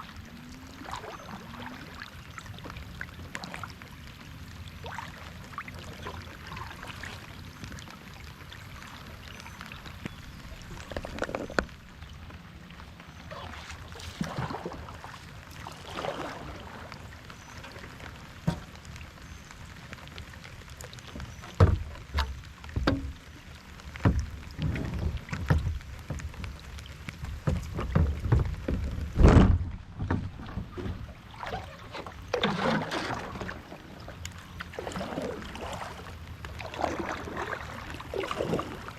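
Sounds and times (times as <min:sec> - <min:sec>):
paddle swishing through water: 0:00.0 - 0:38.9
hollow thumps on kayak hull: 0:21.5 - 0:23.3, 0:24.0 - 0:26.6, 0:27.2 - 0:31.1.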